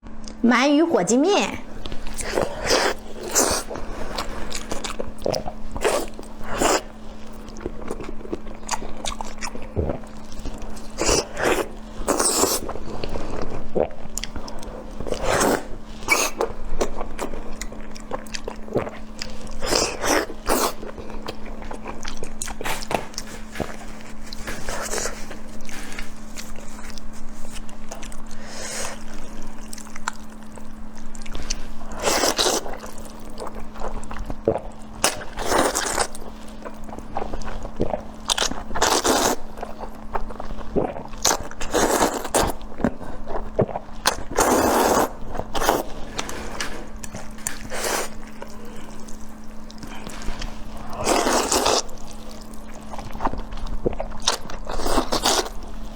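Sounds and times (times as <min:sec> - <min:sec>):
steady low hum: 0:00.0 - 0:55.9
person chewing food: 0:01.6 - 0:55.9
noodle slurps: 0:09.9 - 0:16.4, 0:44.2 - 0:49.2, 0:49.9 - 0:52.5.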